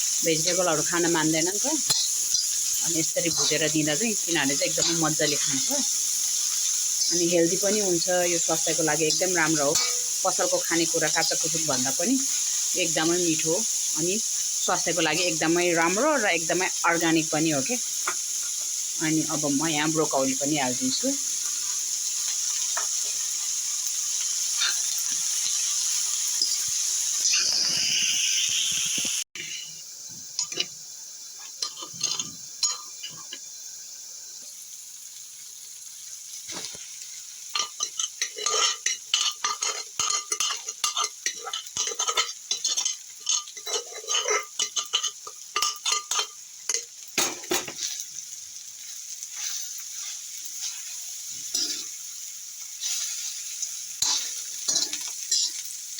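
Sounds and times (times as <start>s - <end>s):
vegetables sizzling in a frying pan: 0.0s - 55.9s
spatula scraping a pan: 0.2s - 13.2s, 24.2s - 27.9s, 37.6s - 46.8s, 49.2s - 52.0s, 52.8s - 55.8s.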